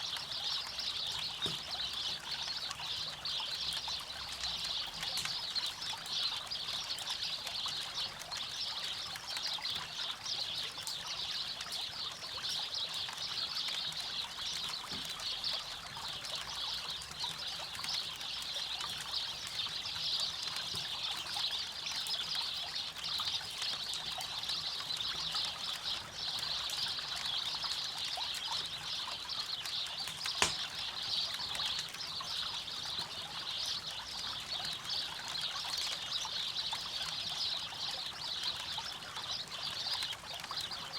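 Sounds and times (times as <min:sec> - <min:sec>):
campfire crackling: 0:27.6 - 0:32.8
fire pop: 0:30.0 - 0:30.8.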